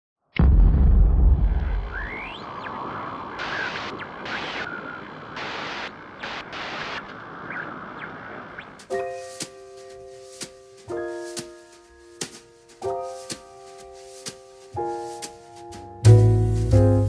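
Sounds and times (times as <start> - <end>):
deep boom rumbling: 0.4 - 2.6
steady hiss: 2.2 - 17.0.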